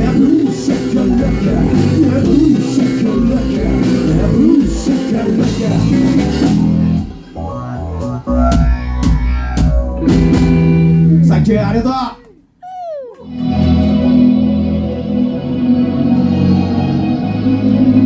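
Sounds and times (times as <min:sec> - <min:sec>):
live rock band playing: 0:00.0 - 0:07.3.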